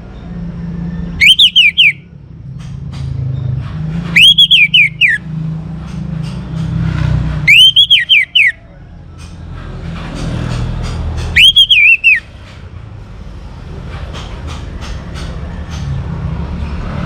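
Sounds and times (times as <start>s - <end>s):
thrush singing: 1.2s - 2.0s, 4.2s - 5.2s, 7.5s - 8.6s, 11.4s - 12.3s.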